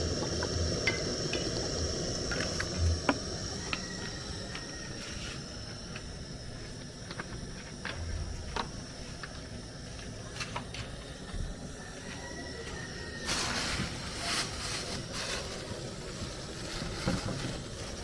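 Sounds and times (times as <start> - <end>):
food frying in hot oil: 0.0 - 5.0, 13.4 - 18.0
high-pitched whine: 0.0 - 18.0.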